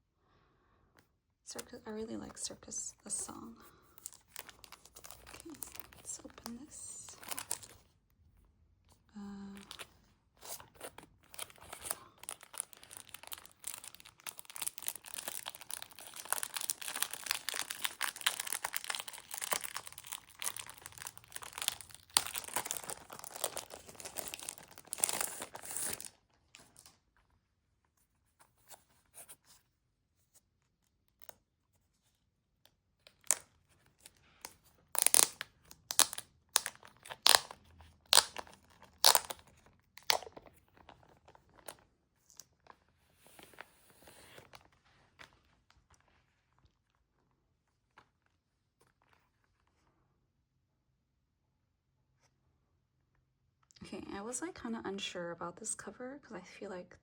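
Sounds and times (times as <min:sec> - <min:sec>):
plastic wrapping crinkling: 0:03.1 - 0:07.9, 0:09.4 - 0:26.9, 0:33.1 - 0:46.1.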